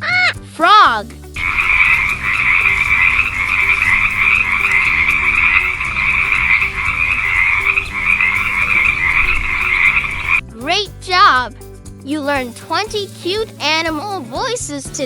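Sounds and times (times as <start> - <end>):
frogs croaking in chorus: 1.3 - 10.4.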